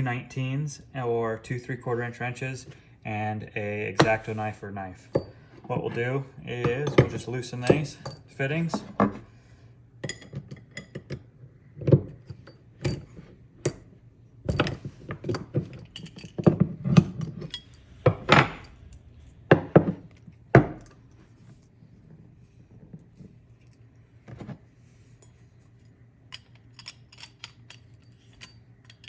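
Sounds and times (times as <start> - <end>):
wrenches clanking on metal fittings: 5.1 - 9.2, 14.5 - 20.0, 26.3 - 29.0.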